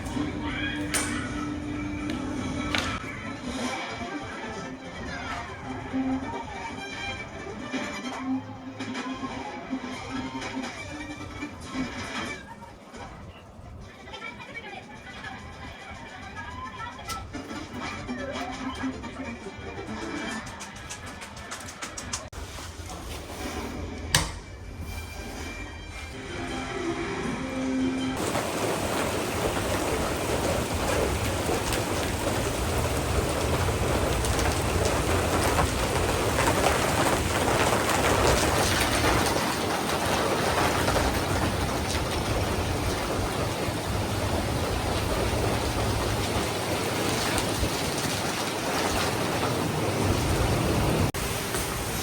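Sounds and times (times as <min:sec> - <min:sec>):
heavy rain falling: 0:00.0 - 0:12.3, 0:28.2 - 0:52.0.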